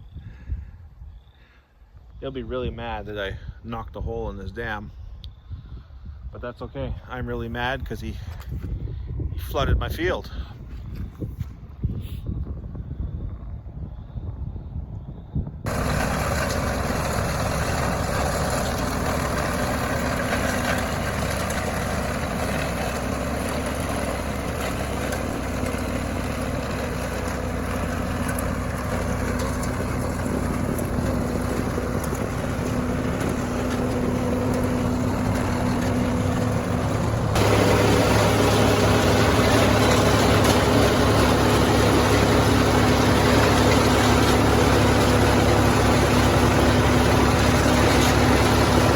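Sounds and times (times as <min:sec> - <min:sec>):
tractor diesel engine running: 0:15.6 - 0:48.9.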